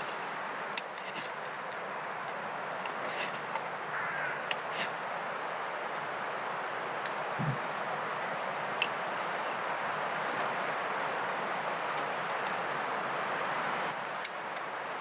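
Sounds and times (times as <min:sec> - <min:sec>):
wind through woodland: 0:00.0 - 0:15.0
faint bird calls: 0:03.9 - 0:04.9, 0:06.7 - 0:08.8.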